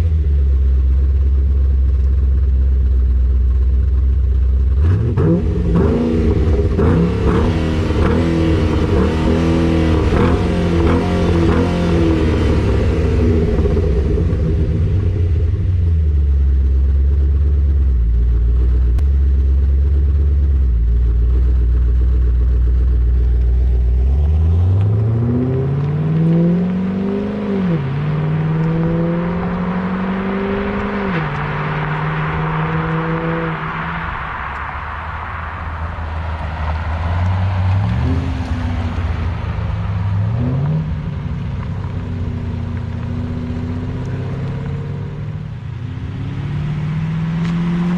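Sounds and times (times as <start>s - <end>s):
car engine idling with choppy lope: 0.0s - 26.0s, 33.5s - 46.6s
car accelerating and upshifting: 4.6s - 15.9s, 22.7s - 47.9s.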